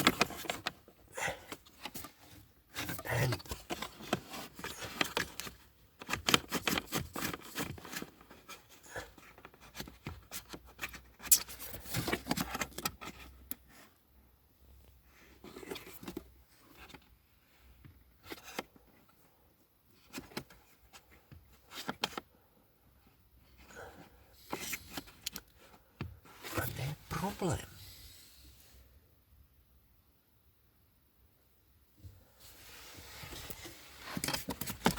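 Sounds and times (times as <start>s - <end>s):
hands clicking and scraping car parts: 24.5s - 26.2s, 33.5s - 34.9s.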